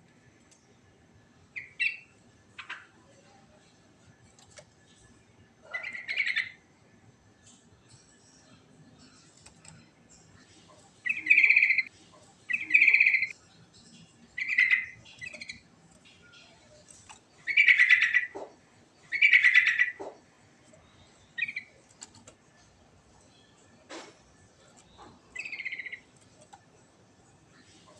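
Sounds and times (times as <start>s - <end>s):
bird singing warbled phrases: 1.6s - 3.0s, 5.6s - 6.6s, 10.5s - 22.0s, 24.8s - 26.4s.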